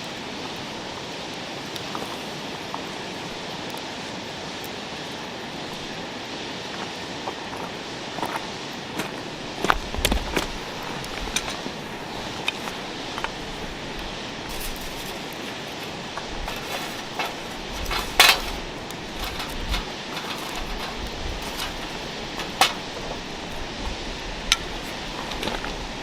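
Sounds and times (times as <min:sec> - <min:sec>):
steady background hiss: 0:00.0 - 0:26.0
metal cookware clinking: 0:16.5 - 0:18.6, 0:19.2 - 0:23.0.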